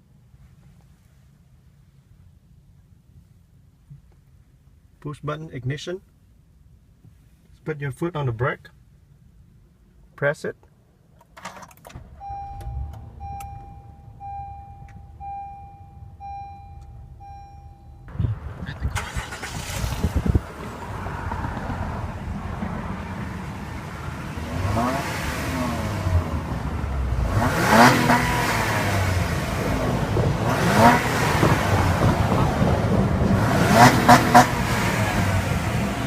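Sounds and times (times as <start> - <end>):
car engine cranking and running: 11.2 - 36.0
car chime beeping: 12.0 - 18.3.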